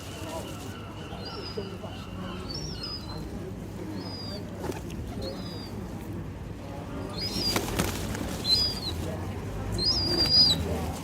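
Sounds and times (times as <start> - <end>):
birds calling: 0.1 - 4.6, 7.0 - 9.1, 9.8 - 10.8
wings flapping: 7.2 - 9.2.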